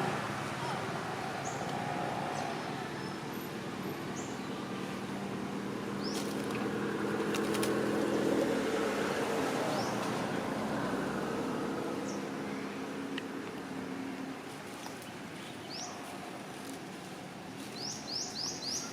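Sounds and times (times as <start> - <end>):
quick run of clicks: 7.2 - 8.0.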